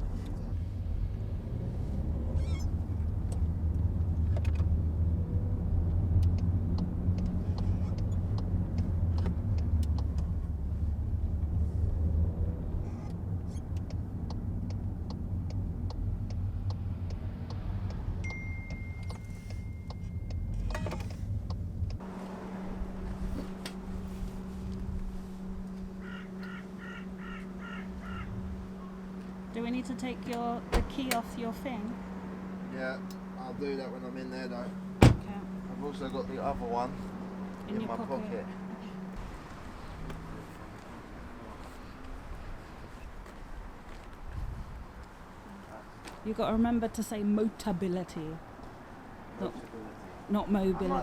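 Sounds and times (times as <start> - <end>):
car road and engine rumble: 0.0 - 51.0
regular clicks: 5.9 - 10.3, 13.1 - 22.0.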